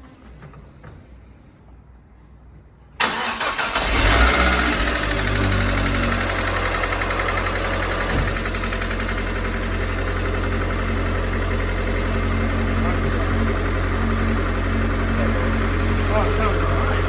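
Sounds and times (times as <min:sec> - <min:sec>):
car engine starting and idling: 0:03.0 - 0:17.0
engine knocking: 0:04.5 - 0:17.0.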